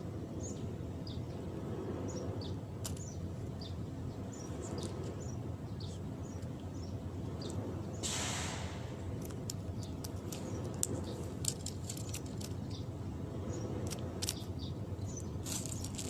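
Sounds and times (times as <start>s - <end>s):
bird chirping: 0.4s - 8.9s, 9.5s - 16.0s
brief rush of hissy noise: 8.0s - 8.9s.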